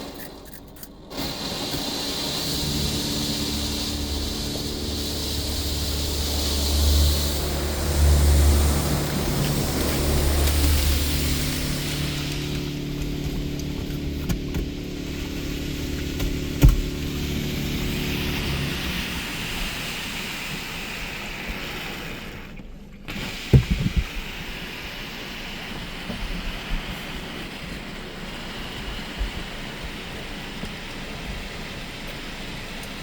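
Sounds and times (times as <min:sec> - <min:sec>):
water jets spraying on car: 0:00.0 - 0:33.0
machine hum: 0:00.4 - 0:21.5
dull thumps: 0:23.6 - 0:24.1.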